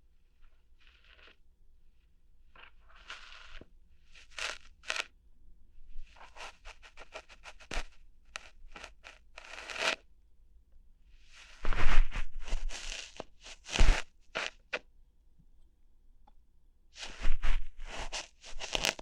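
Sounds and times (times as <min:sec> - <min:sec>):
crackly rubbing strokes: 0:00.3 - 0:01.4, 0:02.5 - 0:05.1, 0:06.0 - 0:10.0, 0:11.2 - 0:14.8, 0:17.0 - 0:19.0
sharp snaps and pops: 0:04.3 - 0:05.1, 0:12.6 - 0:14.8, 0:17.9 - 0:19.0.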